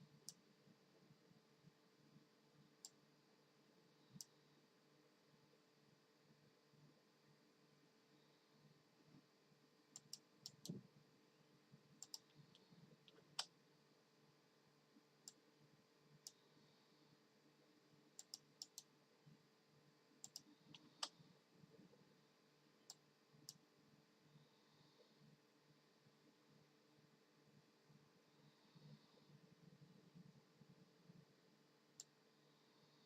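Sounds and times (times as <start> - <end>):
low steady hum: 0.0 - 33.0
faint short clicks: 12.0 - 13.5.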